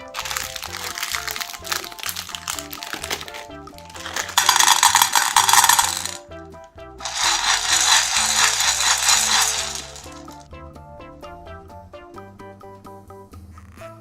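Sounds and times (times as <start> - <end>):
candies clattering: 0.0 - 6.2, 7.0 - 10.4
background music: 0.0 - 14.0.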